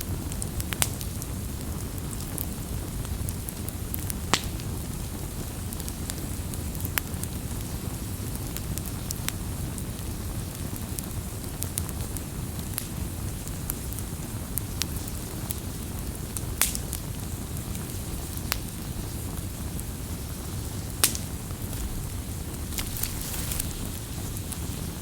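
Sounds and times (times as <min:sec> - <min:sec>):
low fire rumble: 0:00.0 - 0:25.0
wood fire crackling: 0:00.0 - 0:25.0
sharp fire pops: 0:03.3 - 0:04.8, 0:16.4 - 0:25.0.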